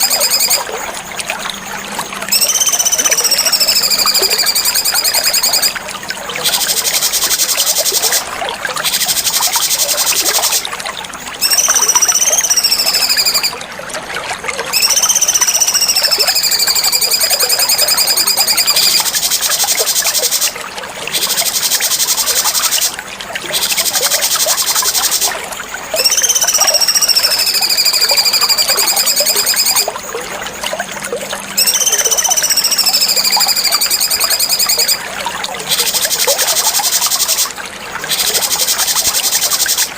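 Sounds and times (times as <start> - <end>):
songbird whistle and buzzy trill: 0.0 - 5.8, 11.4 - 13.6, 14.7 - 25.3, 25.9 - 30.0, 30.8 - 35.1.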